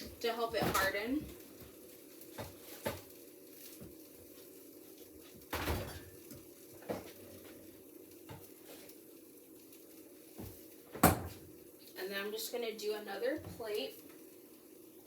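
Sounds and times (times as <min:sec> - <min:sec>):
light knocks of refrigerator door: 0:10.9 - 0:11.4.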